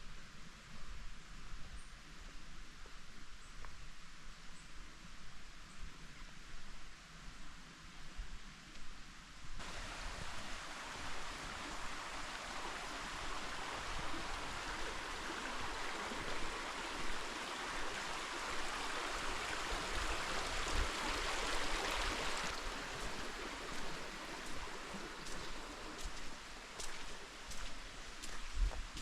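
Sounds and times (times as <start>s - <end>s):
creek water rushing over rocks: 9.6s - 29.0s.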